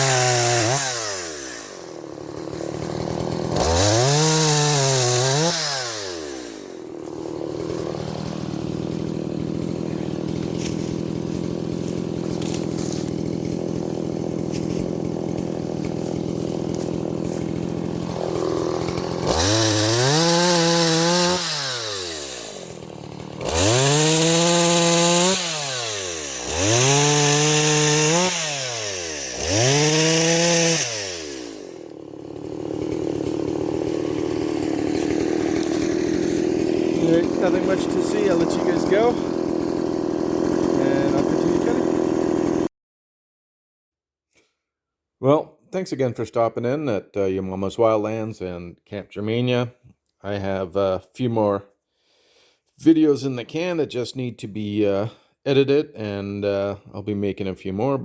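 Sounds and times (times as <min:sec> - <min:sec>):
chainsaw idling and revving: 0:00.0 - 0:42.7.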